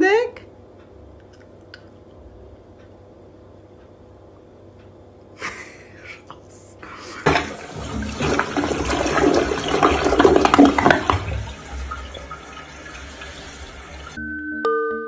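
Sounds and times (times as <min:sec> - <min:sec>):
water rushing and splashing: 0:07.3 - 0:14.2.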